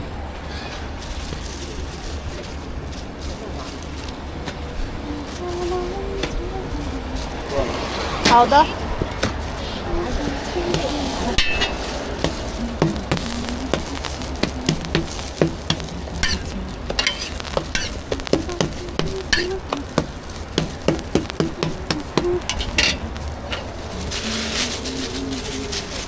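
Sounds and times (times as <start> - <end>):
hissing spurts: 0.2 - 26.0
food sizzling on a griddle: 7.1 - 26.0
cooking utensils knocking and scraping: 10.7 - 23.7.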